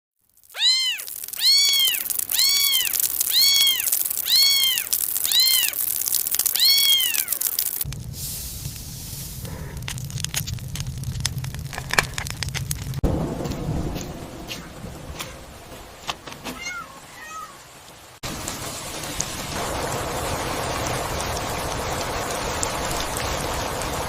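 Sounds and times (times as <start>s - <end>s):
low rumble with crackles: 0.2s - 16.6s, 17.9s - 24.0s
cat meowing: 0.5s - 5.8s, 6.5s - 7.5s, 16.5s - 17.6s.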